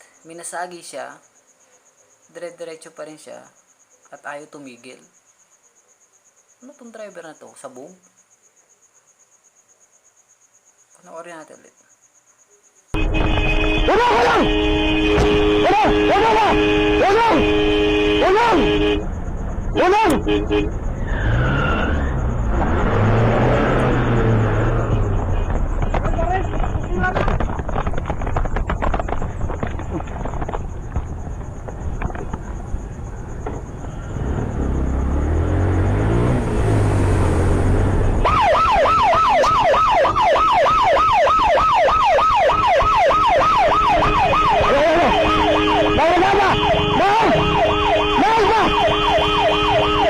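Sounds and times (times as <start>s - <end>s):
vehicle engine drone: 13.0s - 40.3s, 42.6s - 50.0s
police yelp siren: 13.6s - 19.0s, 38.2s - 50.0s.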